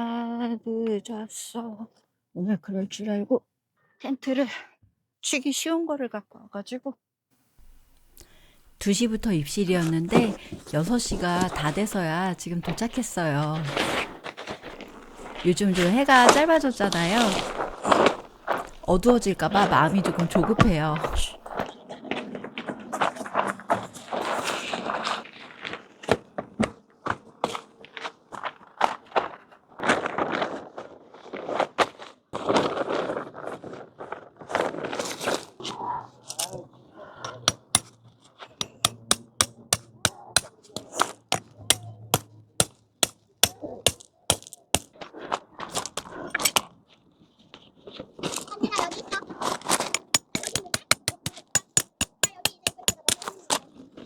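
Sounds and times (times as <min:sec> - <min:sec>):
tent rustling: 0:07.6 - 0:21.7
sharp knocks: 0:38.6 - 0:44.9, 0:49.9 - 0:53.3.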